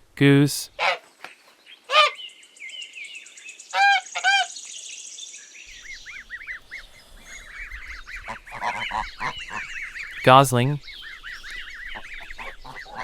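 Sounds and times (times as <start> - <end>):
goose honking: 0.8 - 1.0, 1.9 - 2.2, 3.7 - 4.6, 7.3 - 10.4, 11.2 - 13.0.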